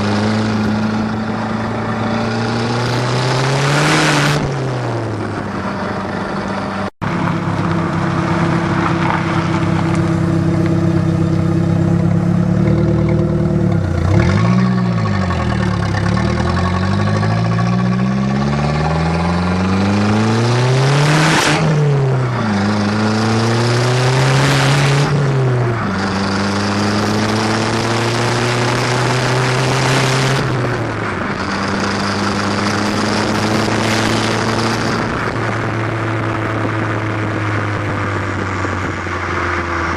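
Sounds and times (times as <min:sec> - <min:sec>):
car exhaust accelerating: 0:00.0 - 0:39.9
road noise: 0:00.0 - 0:39.9
wind noise: 0:17.0 - 0:39.9.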